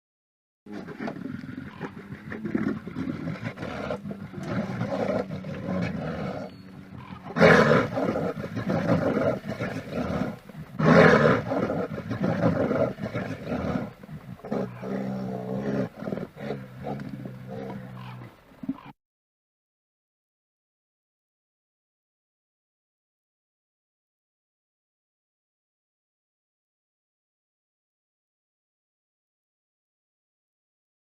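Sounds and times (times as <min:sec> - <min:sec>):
wild animal roaring and growling: 0:00.7 - 0:18.9.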